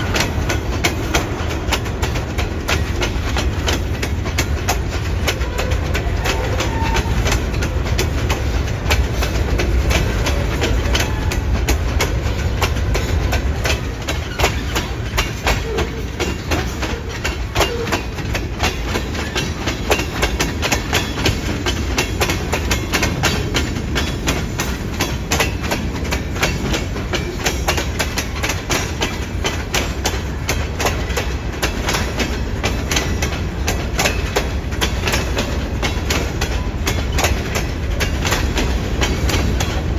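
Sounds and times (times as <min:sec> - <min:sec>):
low train rumble: 0:00.0 - 0:39.9
train wheels clacking over rail joints: 0:00.0 - 0:39.9.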